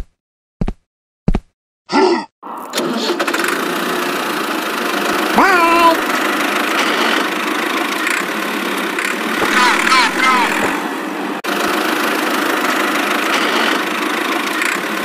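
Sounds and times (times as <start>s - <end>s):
engine starting and running: 2.4s - 15.0s
sharp clicks: 9.0s - 9.6s.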